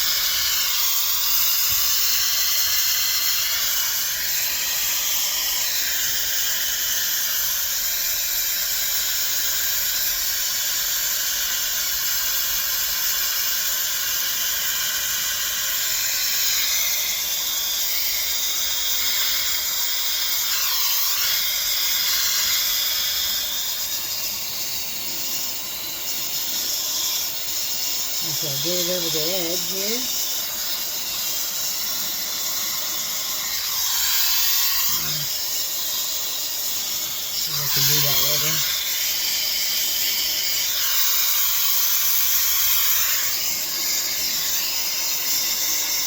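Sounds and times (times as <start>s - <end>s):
hairdryer blowing air: 0.0s - 6.9s, 22.0s - 46.0s.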